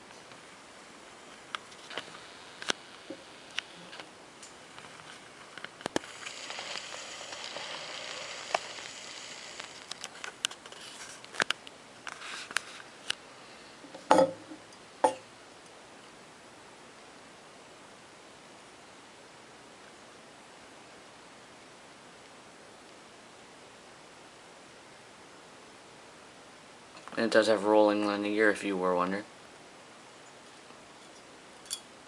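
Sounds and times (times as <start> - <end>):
soft rustling: 1.3 - 13.2.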